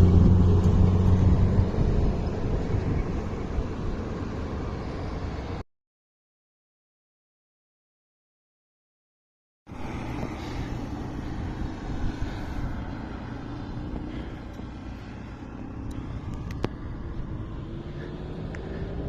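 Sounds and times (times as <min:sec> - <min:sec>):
vehicle engine rumble: 0:00.0 - 0:05.6, 0:09.7 - 0:19.0.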